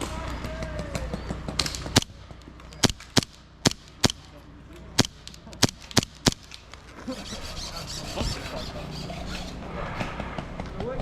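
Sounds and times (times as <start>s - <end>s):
airsoft gun shots: 2.8s - 4.3s, 5.0s - 6.6s.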